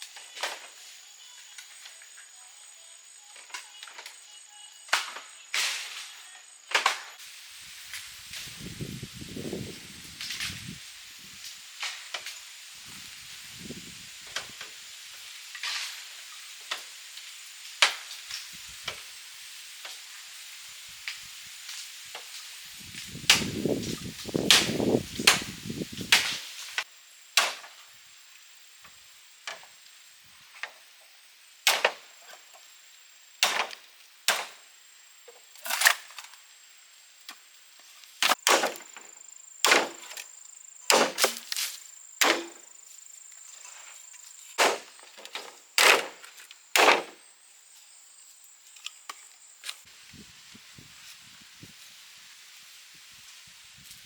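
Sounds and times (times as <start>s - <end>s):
blade chopping wood: 24.4s - 25.5s, 31.7s - 32.1s, 33.4s - 34.6s, 38.2s - 40.3s, 40.9s - 42.7s, 44.6s - 47.2s.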